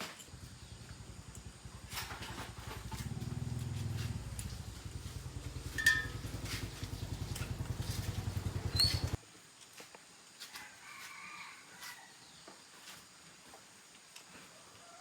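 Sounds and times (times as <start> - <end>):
motorbike engine idling: 0.3 - 9.2.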